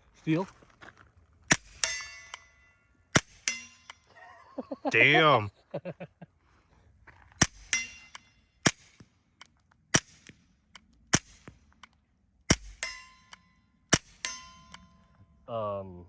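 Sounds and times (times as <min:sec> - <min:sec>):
suppressed pistol shots: 0:01.5 - 0:02.4, 0:03.2 - 0:04.0, 0:07.4 - 0:09.1, 0:09.9 - 0:14.9
steel target plate ringing: 0:01.5 - 0:04.2, 0:07.4 - 0:09.0, 0:12.5 - 0:15.4.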